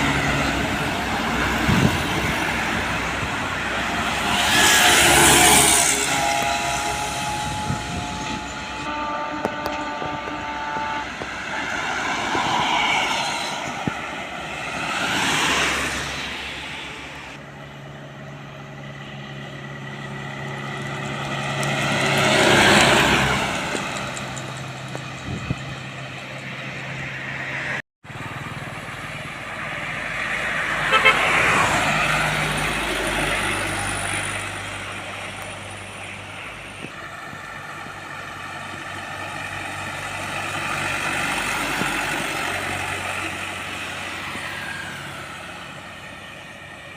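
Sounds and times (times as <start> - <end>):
heavy trucks passing: 0.0 - 46.9
road traffic: 0.0 - 46.9
vehicle horn toot: 4.7 - 11.3, 30.8 - 31.5.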